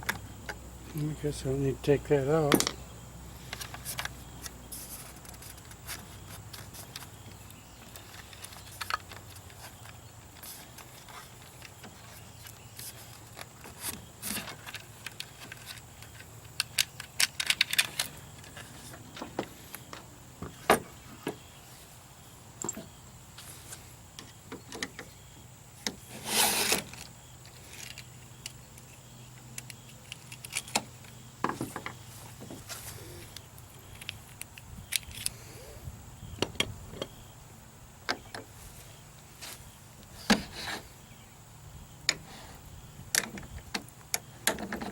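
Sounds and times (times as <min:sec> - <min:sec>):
rasping noise: 0:26.0 - 0:27.1.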